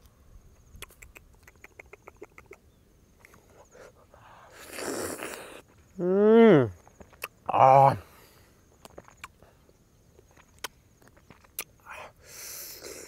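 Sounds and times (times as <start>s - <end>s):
bird chirping: 0.4s - 3.9s
slurping and mouth sounds: 4.5s - 5.7s.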